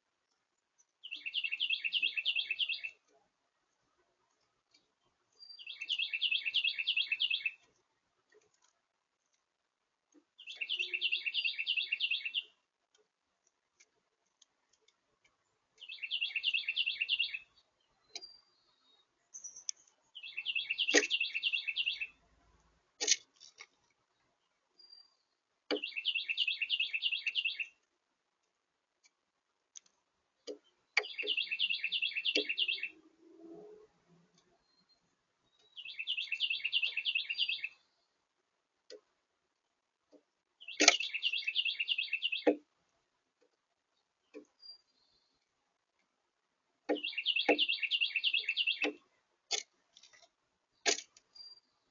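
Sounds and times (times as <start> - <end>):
songbird rapid trilled song: 0.9 - 3.1, 5.4 - 7.7, 10.4 - 12.6, 15.8 - 22.2, 24.8 - 27.8, 30.5 - 33.0, 34.4 - 37.8, 40.6 - 42.6, 46.9 - 49.0
sharp clicks: 40.1 - 41.2.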